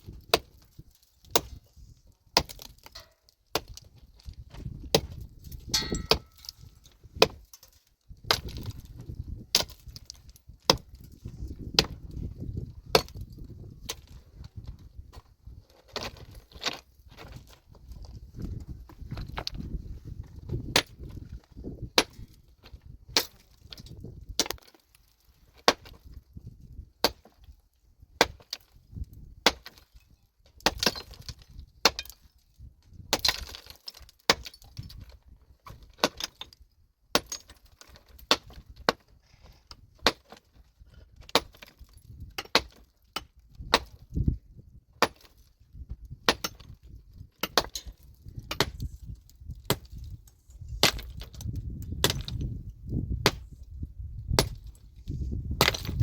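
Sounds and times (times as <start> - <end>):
pickaxe striking rock: 0.1 - 0.6, 1.2 - 1.6, 2.4 - 14.2, 20.5 - 22.3, 23.1 - 24.8, 25.6 - 26.2, 27.0 - 27.4, 29.4 - 29.9, 30.6 - 32.3, 33.1 - 36.5, 37.1 - 39.1, 40.0 - 40.4, 41.2 - 44.3, 45.0 - 45.5, 46.2 - 46.8, 47.4 - 52.6, 53.2 - 53.6, 54.3 - 54.8, 55.4 - 56.0
stone chips knocking: 5.7 - 6.6.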